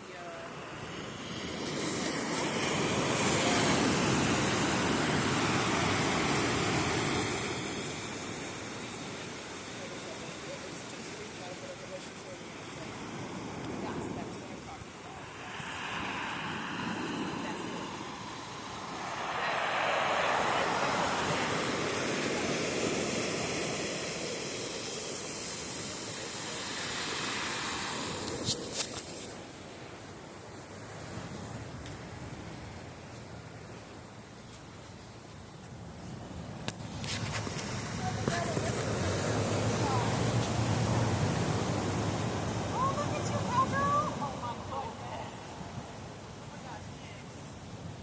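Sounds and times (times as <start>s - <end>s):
ocean wave rushing in: 0.4s - 31.7s, 36.8s - 46.5s
water washing back: 12.8s - 29.4s.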